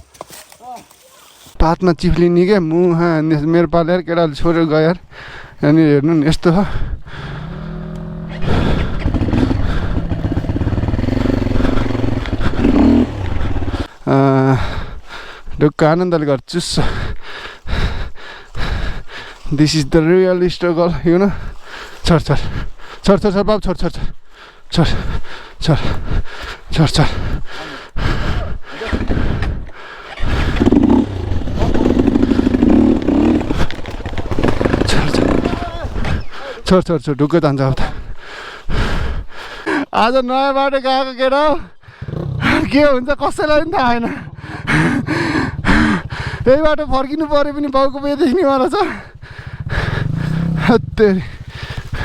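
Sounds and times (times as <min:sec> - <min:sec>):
dirt bike engine revving: 0:07.2 - 0:13.9, 0:30.1 - 0:36.2, 0:41.9 - 0:52.0.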